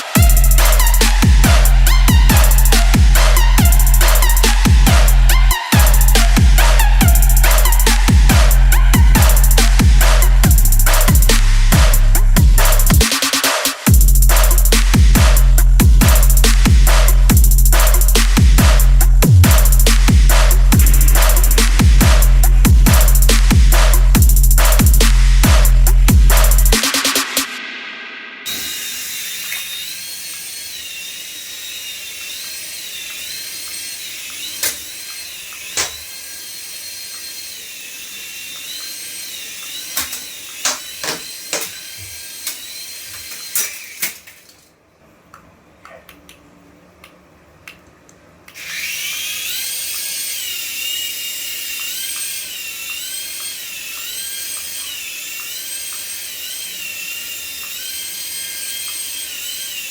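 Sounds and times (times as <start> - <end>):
toy electric motor whining: 0.0 - 14.7, 28.5 - 44.1, 48.6 - 59.9.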